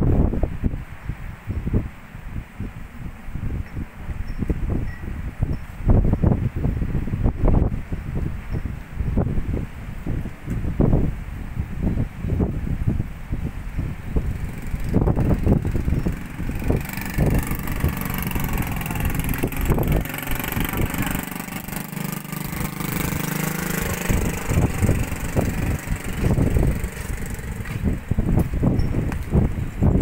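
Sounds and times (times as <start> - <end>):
wind buffeting microphone: 0.0 - 30.0
engine running: 13.8 - 30.0.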